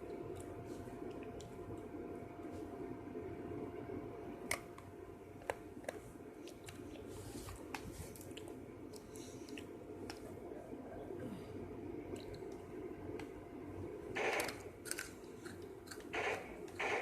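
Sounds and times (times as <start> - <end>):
steady low hum: 0.0 - 17.0
person chewing: 6.4 - 10.3, 14.4 - 16.1.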